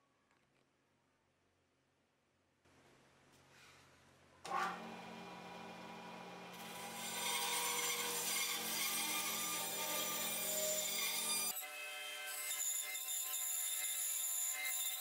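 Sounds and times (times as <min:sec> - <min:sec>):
woodworking power tool cutting wood: 0:04.5 - 0:15.0.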